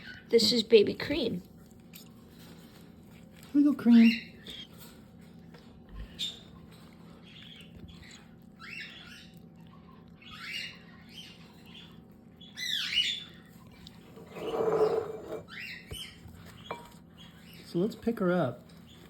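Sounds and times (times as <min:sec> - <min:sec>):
baby cockatiels begging chirps: 0:10.2 - 0:13.4.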